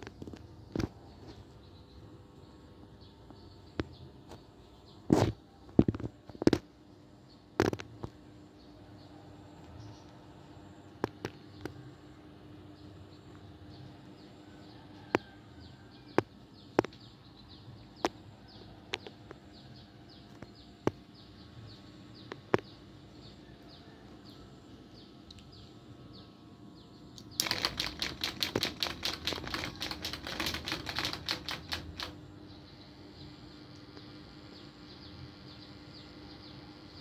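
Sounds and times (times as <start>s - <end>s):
ceiling fan humming and ticking: 5.6s - 37.0s
rapid clatter: 27.4s - 32.2s.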